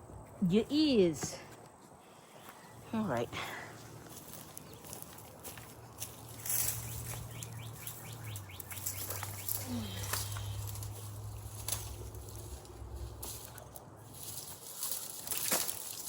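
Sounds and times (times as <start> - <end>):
garden plants rustling and crackling: 0.1 - 16.0
bird trill: 6.3 - 11.5.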